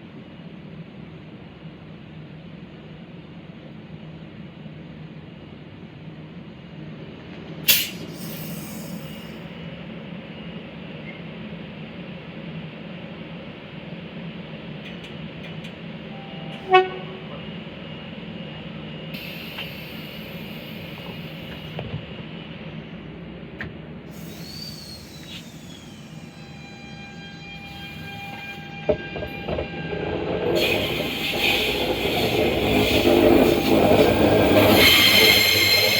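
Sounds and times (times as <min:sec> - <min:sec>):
train rumble: 0:00.1 - 0:35.9
train horn toot: 0:16.2 - 0:17.5, 0:26.2 - 0:35.8
thin high squealing tones: 0:24.2 - 0:35.9.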